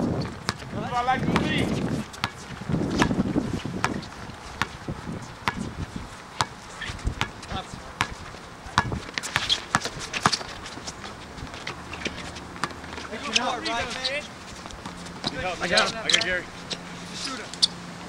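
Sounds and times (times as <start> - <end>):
shoe squeaks on court: 8.8 - 11.1, 11.7 - 17.8.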